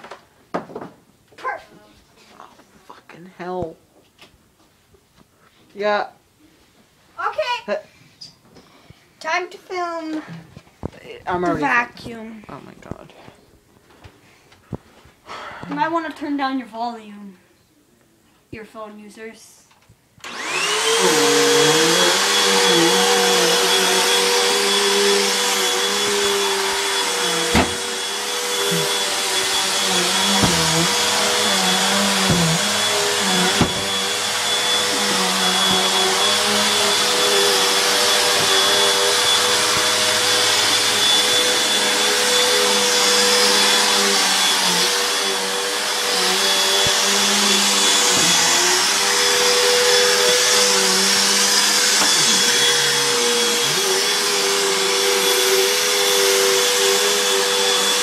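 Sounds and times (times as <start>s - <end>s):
vacuum cleaner running: 20.2s - 58.0s
sharp knocks: 27.5s - 27.9s, 33.5s - 34.0s.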